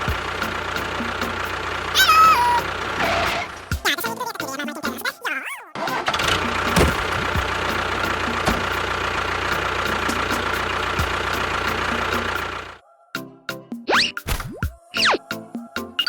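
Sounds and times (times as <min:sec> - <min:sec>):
engine running steadily: 0:00.0 - 0:03.8, 0:05.8 - 0:12.8.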